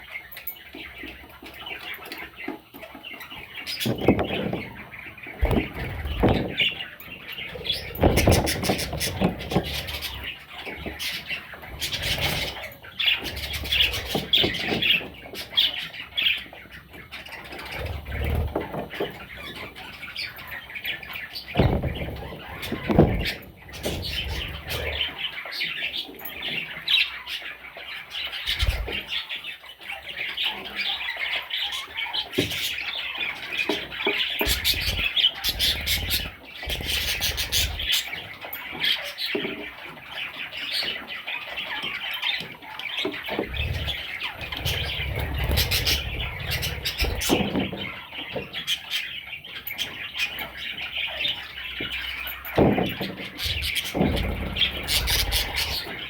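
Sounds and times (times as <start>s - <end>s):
birds chirping and squawking: 0.0s - 56.0s
scratches and low bumps: 43.3s - 48.0s, 52.6s - 56.0s.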